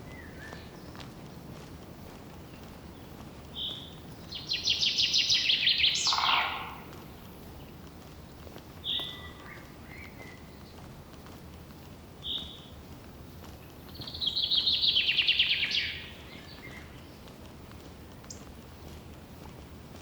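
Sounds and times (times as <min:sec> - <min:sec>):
bird rapid high trill: 0:04.5 - 0:06.9.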